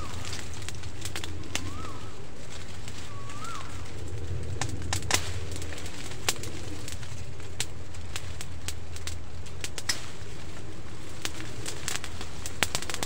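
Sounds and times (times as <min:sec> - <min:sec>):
bird whistling call: 0:00.0 - 0:00.5, 0:01.5 - 0:02.3, 0:03.0 - 0:03.9
sharp snaps: 0:00.0 - 0:10.3, 0:11.1 - 0:13.0
steady low hum: 0:00.0 - 0:13.0.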